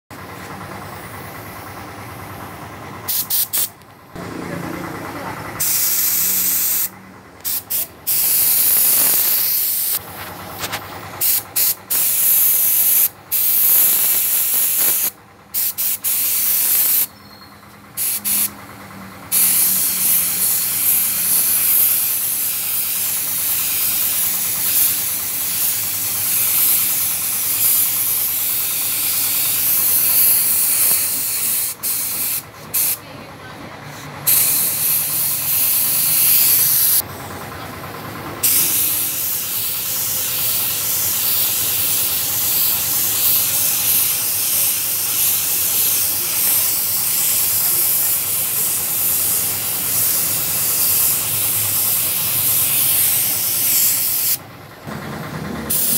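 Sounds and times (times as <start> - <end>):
spray gun hissing: 3.1 - 3.7, 5.6 - 10.0, 11.2 - 17.1, 18.0 - 18.5, 19.3 - 33.0, 34.3 - 37.0, 38.4 - 54.4.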